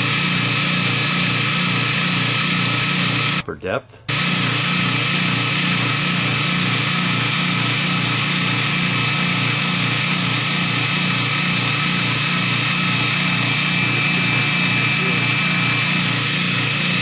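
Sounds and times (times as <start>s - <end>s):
belt grinder running: 0.0s - 3.4s, 4.1s - 17.0s.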